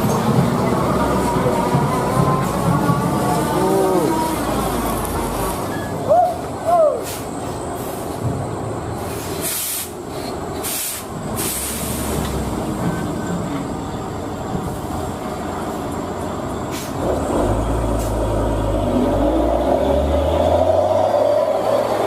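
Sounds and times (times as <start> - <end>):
heavy truck engine running: 0.0 - 22.0
air brake hisses: 6.9 - 8.2, 9.0 - 12.3, 16.7 - 17.0.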